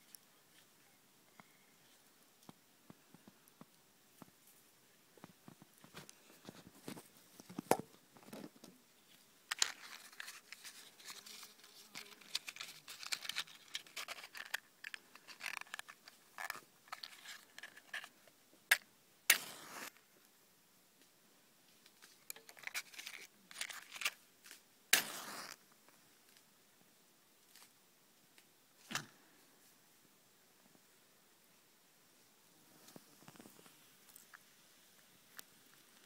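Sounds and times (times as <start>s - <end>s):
rustling: 0.0s - 20.0s, 21.0s - 26.5s
wood fire crackling: 2.4s - 17.6s, 19.3s - 20.0s, 24.9s - 25.7s
short hissing bursts: 19.3s - 19.9s, 24.9s - 25.6s.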